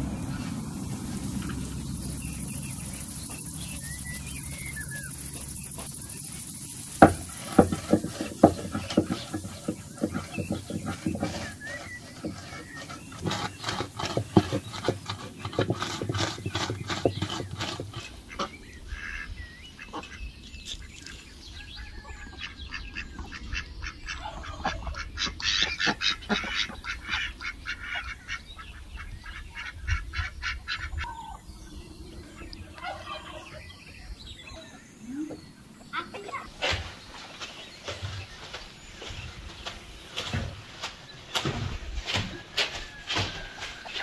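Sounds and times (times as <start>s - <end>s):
ducks calling: 0.0s - 21.2s, 22.0s - 44.0s
hands working food in bowl: 3.3s - 18.1s, 36.5s - 44.0s.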